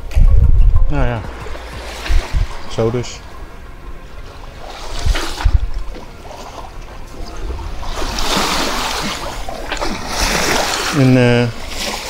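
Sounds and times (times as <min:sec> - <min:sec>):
low knocks on hull: 0:00.3 - 0:02.9
water lapping against hull: 0:01.2 - 0:12.0.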